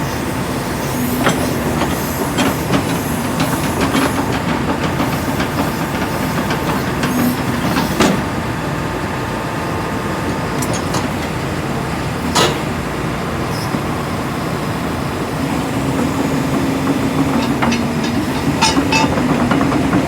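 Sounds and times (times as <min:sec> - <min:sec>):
excavator engine running: 0:00.2 - 0:20.0
faint hydraulic whine: 0:09.5 - 0:19.9
metallic clanks and knocks: 0:10.6 - 0:11.4, 0:15.8 - 0:20.0.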